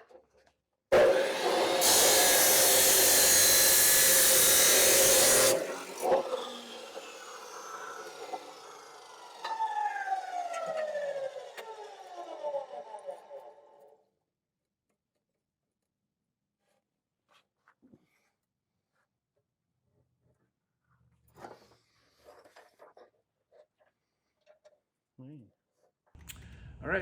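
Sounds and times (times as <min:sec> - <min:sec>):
electric power tool running: 0:00.9 - 0:13.8.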